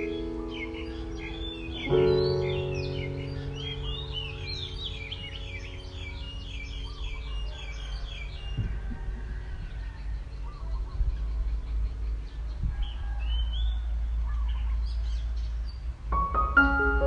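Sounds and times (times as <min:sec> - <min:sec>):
songbird chirping: 0:00.0 - 0:17.0
steady low rumble: 0:08.3 - 0:17.0.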